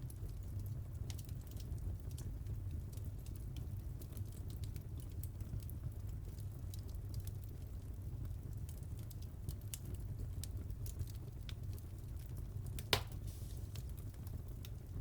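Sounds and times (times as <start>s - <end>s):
wood fire crackling: 0.0s - 15.0s
sharp loud pop: 12.9s - 13.3s.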